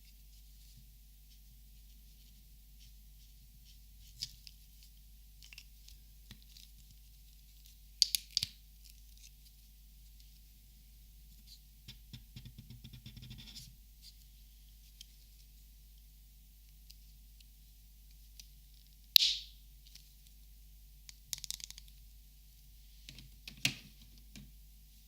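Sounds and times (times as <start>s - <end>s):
small clicks and rattles: 21.1s - 22.0s.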